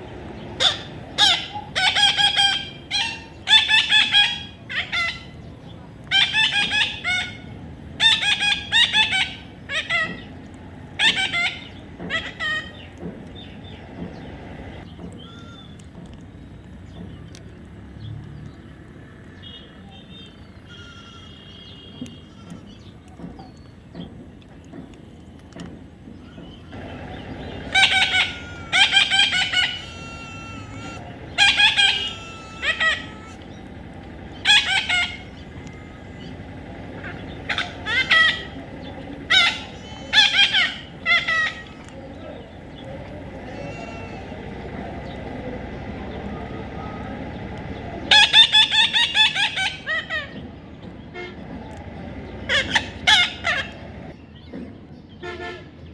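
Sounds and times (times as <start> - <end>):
parrot squawks: 0.6 - 5.4, 6.1 - 7.4, 8.0 - 10.3, 11.0 - 12.9, 27.7 - 33.5, 34.4 - 35.9, 37.0 - 38.6, 39.3 - 41.9, 48.1 - 50.4, 52.5 - 53.8.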